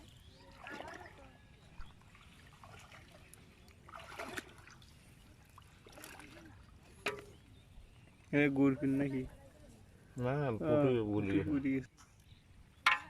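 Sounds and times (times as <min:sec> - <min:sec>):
water trickling and splashing: 0:00.0 - 0:10.4.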